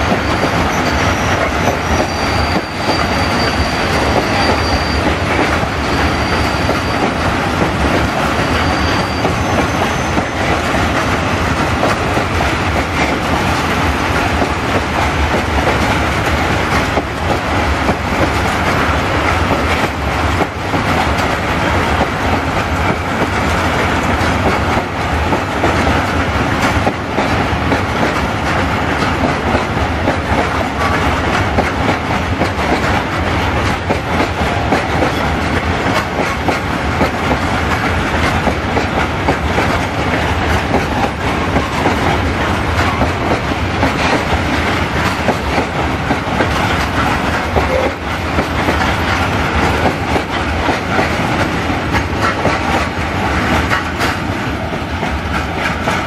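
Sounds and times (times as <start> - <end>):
freight train wheels clattering: 0.0 - 56.0.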